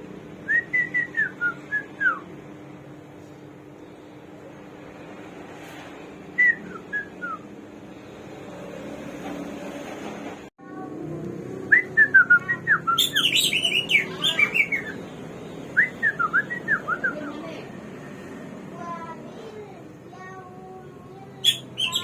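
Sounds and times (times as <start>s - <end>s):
songbird whistled song: 0.4s - 2.3s, 6.4s - 7.5s, 11.7s - 17.3s, 21.4s - 22.0s.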